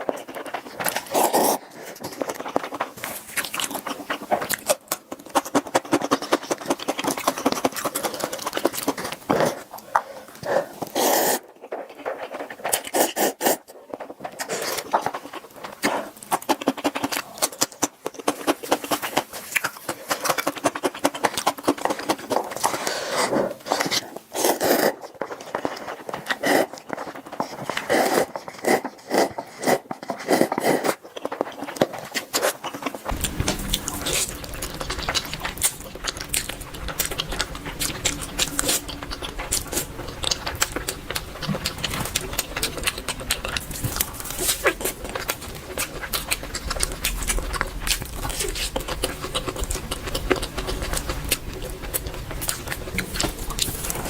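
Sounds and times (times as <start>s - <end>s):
wet chewing mouth clicks: 0.0s - 54.0s
low hum: 33.1s - 54.0s.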